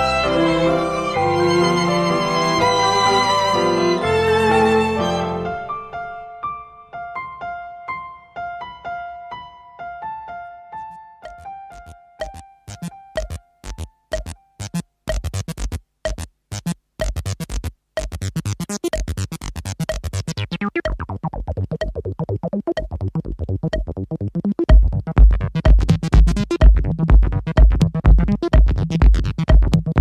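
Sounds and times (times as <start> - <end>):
synthesizer pulses: 11.2 - 30.0.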